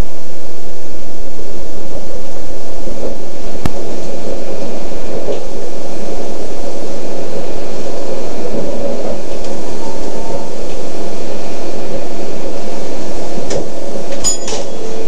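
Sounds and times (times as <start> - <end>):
train running noise: 3.0 - 15.0.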